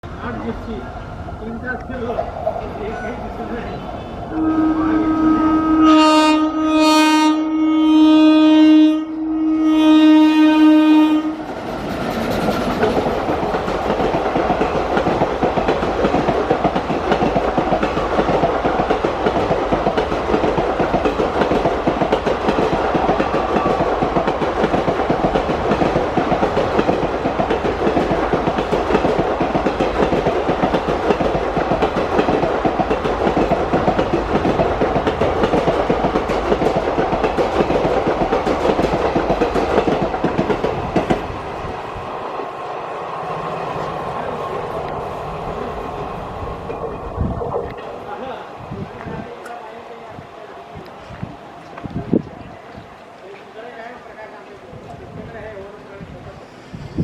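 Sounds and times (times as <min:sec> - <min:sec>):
locomotive horn: 0:04.3 - 0:11.5
train wheels clattering on rails: 0:11.4 - 0:41.6.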